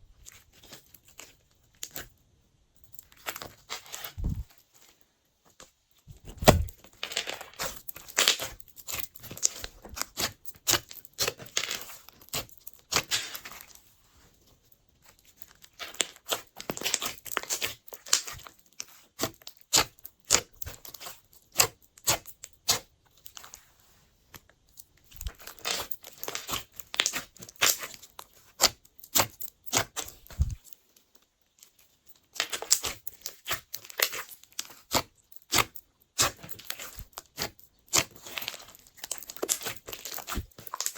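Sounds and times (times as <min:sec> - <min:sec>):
hands squishing slime: 0:06.1 - 0:06.8, 0:07.5 - 0:13.8, 0:15.3 - 0:23.6, 0:25.2 - 0:30.7, 0:32.2 - 0:40.9.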